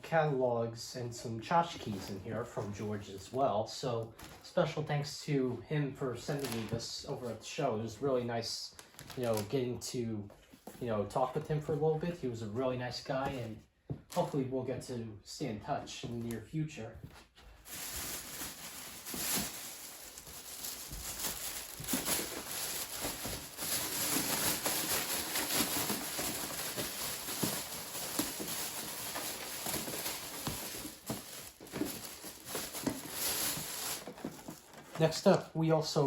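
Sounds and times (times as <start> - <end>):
packaging rustling and crinkling: 8.8 - 9.6, 17.5 - 35.4.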